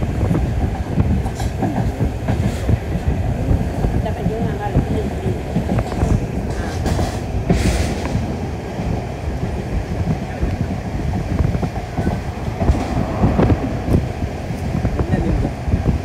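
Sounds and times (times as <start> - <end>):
train wheels rumbling on track: 0.0 - 16.0
rushing hiss: 6.5 - 8.4.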